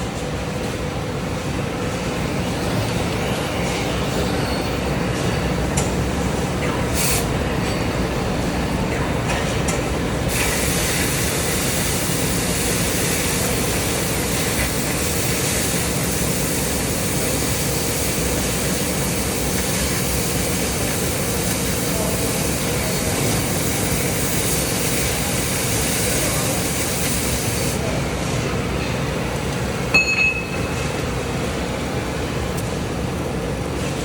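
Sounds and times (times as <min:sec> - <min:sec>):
cutting torch roaring hiss: 0:10.3 - 0:27.8.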